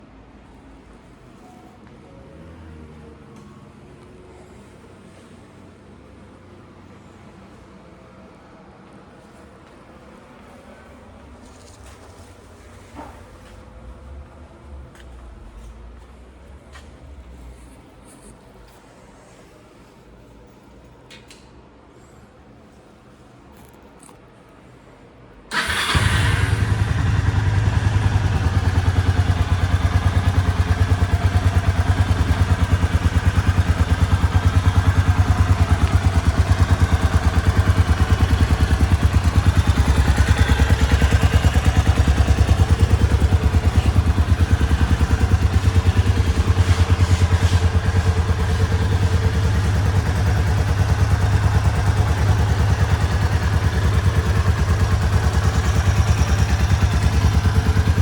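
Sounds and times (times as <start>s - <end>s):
motorcycle engine starting and idling: 25.5s - 58.0s.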